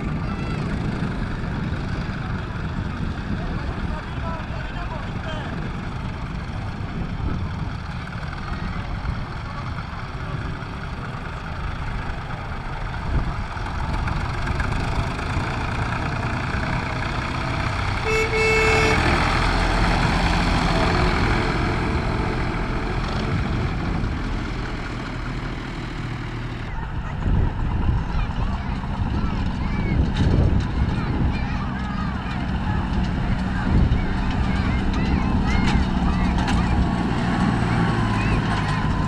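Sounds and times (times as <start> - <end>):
tractor engines running: 0.0 - 39.0
short horn toot: 18.0 - 19.3.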